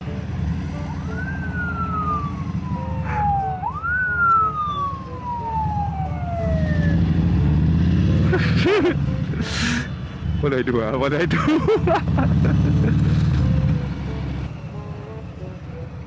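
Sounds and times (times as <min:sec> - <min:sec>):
motorcycle engine running: 0:00.0 - 0:04.0, 0:04.8 - 0:11.1, 0:11.8 - 0:14.7
police siren wailing: 0:00.5 - 0:08.9.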